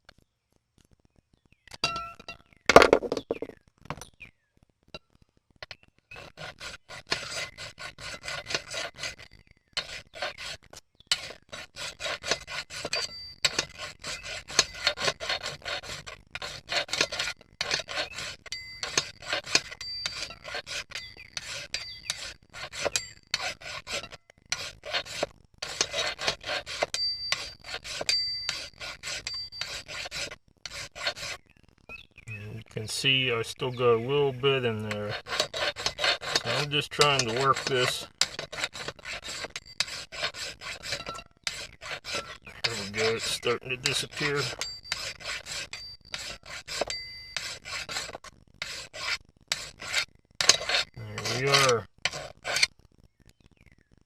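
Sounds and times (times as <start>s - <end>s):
file rasping on metal: 6.1s - 31.4s, 32.9s - 52.7s.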